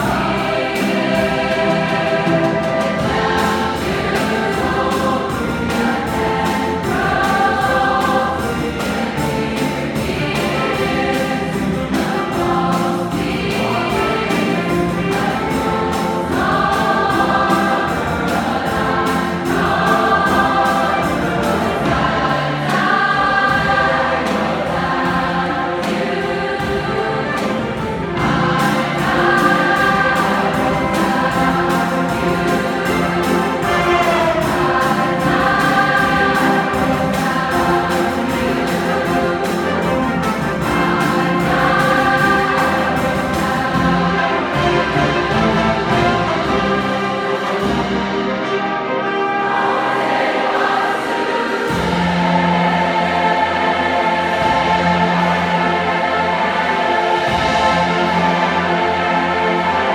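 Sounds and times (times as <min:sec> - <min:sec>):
jazz band with steady beat: 0:00.0 - 0:59.9
large choir singing in harmony: 0:00.0 - 0:59.9.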